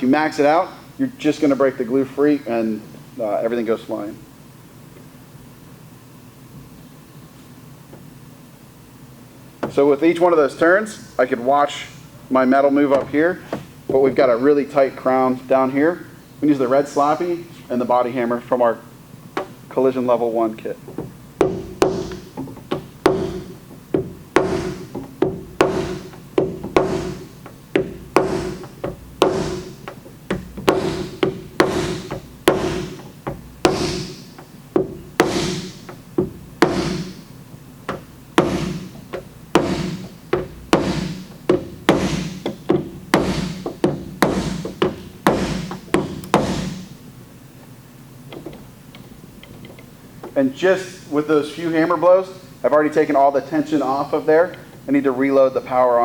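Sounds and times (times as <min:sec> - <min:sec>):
hammer striking steel panel: 0:21.4 - 0:37.3, 0:37.9 - 0:46.9.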